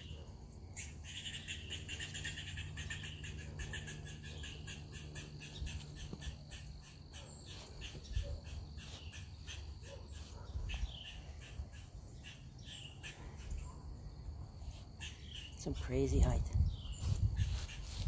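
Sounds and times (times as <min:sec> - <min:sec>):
bird calls: 0:00.0 - 0:18.0.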